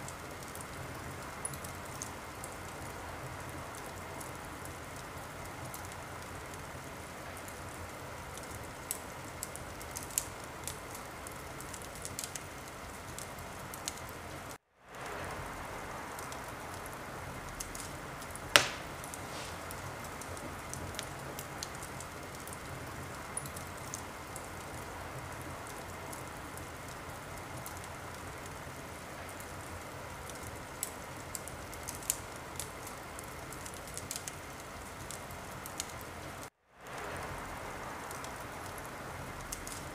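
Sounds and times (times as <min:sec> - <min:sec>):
wood fire crackling: 0:00.0 - 0:39.9
loud pop from fire: 0:18.5 - 0:19.9.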